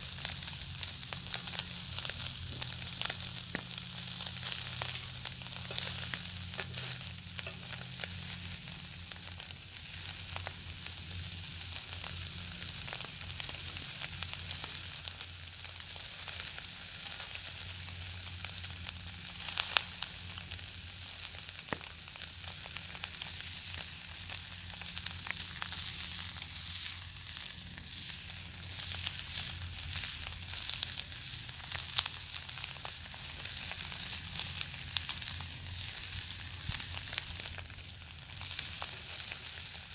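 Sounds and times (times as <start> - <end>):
bacon sizzling in a pan: 0.0 - 39.9
fat popping and crackling: 2.2 - 5.0, 21.6 - 22.0.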